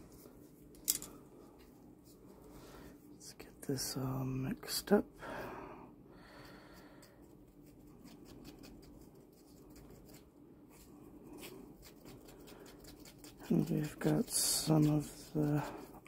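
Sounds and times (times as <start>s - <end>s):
resin being stirred: 11.4s - 16.0s.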